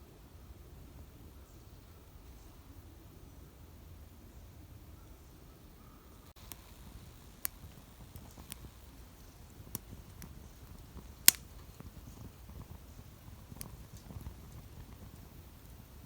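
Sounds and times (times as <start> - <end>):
low background rumble: 6.3 - 16.0
sharp clicks and snaps: 6.4 - 15.8.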